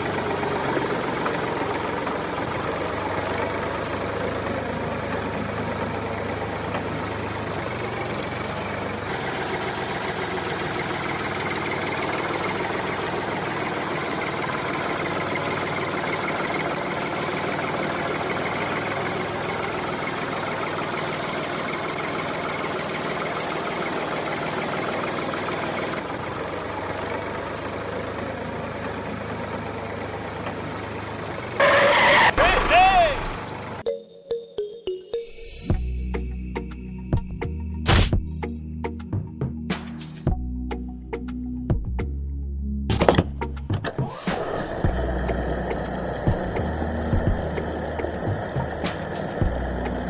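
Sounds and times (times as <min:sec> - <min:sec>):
small motor running: 0:44.0 - 0:50.0.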